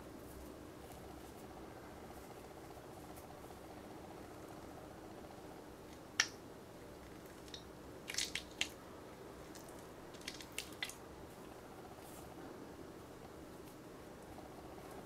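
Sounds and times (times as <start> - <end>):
steady low hum: 0.0 - 15.0
stress ball squishing: 7.1 - 8.8, 9.4 - 11.4.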